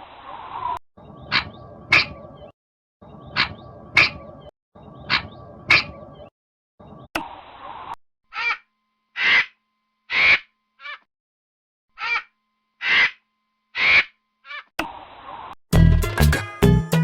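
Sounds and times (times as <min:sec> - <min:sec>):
crow cawing: 0:08.3 - 0:11.1, 0:12.0 - 0:13.2, 0:13.8 - 0:14.7.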